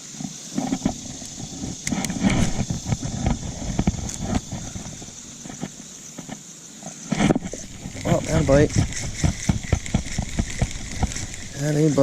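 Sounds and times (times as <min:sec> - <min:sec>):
steady hiss: 0:00.0 - 0:12.0
fishing gear clattering in kayak: 0:07.2 - 0:12.0.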